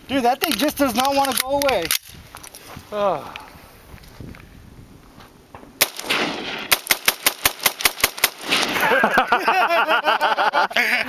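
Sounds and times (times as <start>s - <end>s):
rifle shots: 5.8s - 9.0s.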